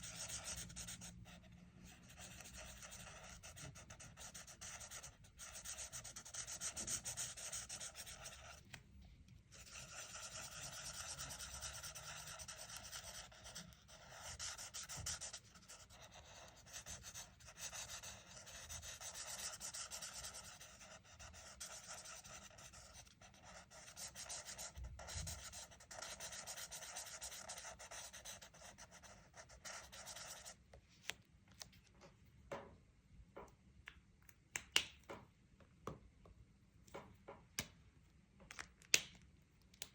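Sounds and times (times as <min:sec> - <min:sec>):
colouring strokes scratching on paper: 0:00.0 - 0:08.6, 0:09.6 - 0:30.6.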